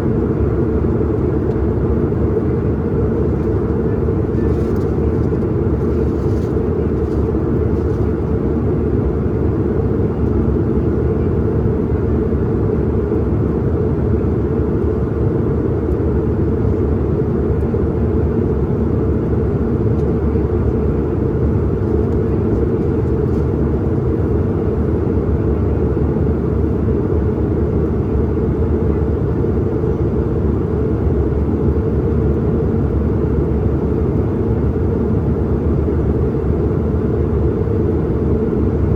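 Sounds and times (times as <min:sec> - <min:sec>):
airliner cabin engine rumble: 0:00.0 - 0:38.9.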